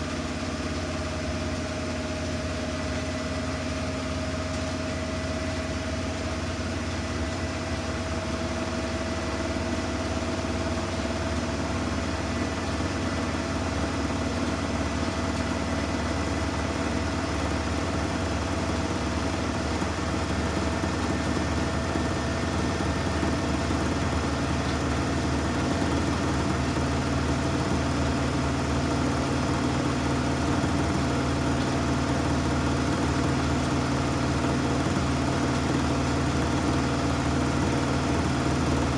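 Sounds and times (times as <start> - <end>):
washing machine spinning: 0.8 - 38.9.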